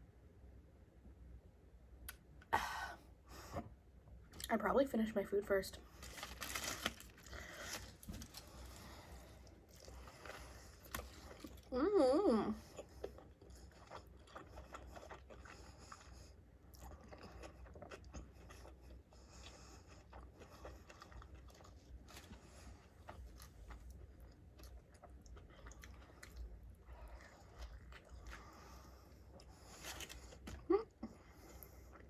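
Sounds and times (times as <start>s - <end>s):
person chewing food: 5.9s - 11.8s, 12.5s - 32.0s.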